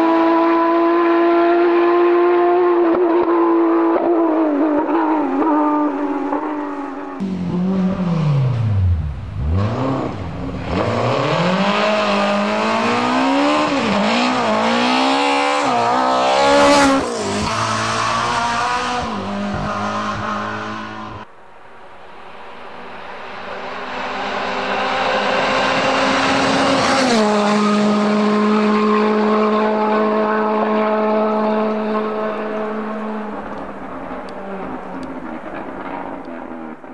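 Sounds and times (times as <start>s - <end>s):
rally car engine revving: 0.0s - 21.3s, 22.6s - 36.9s.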